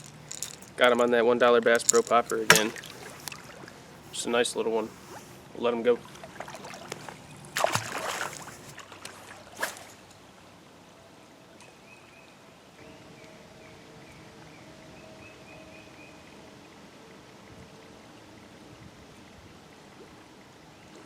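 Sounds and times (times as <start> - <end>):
creek water running: 0.0 - 10.6
sharp splash: 6.0 - 10.0.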